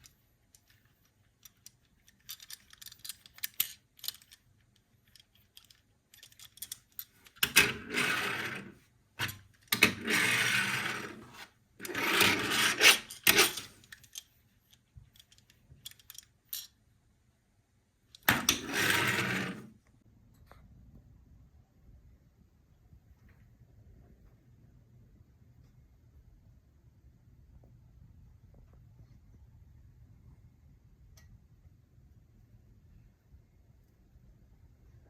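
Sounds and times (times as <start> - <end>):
plastic toys clicking and tapping: 0.0 - 7.7, 13.0 - 16.7
toys rubbing or rolling: 7.4 - 13.9, 18.2 - 19.8.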